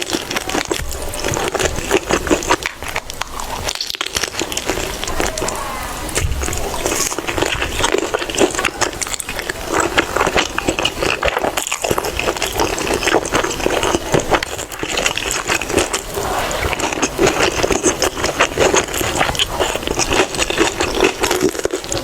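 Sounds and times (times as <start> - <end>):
person chewing noodles: 0.0 - 22.0.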